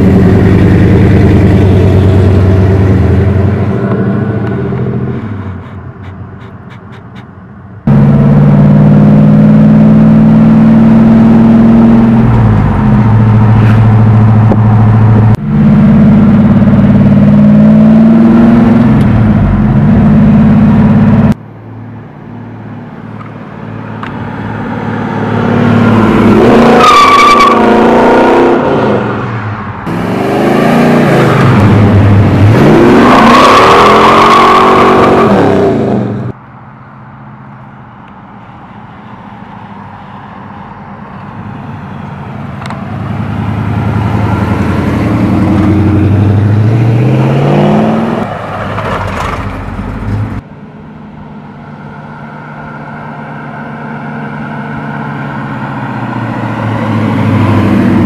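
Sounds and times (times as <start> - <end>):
car engine accelerating hard: 7.8 - 21.4, 23.1 - 36.4, 42.6 - 58.0.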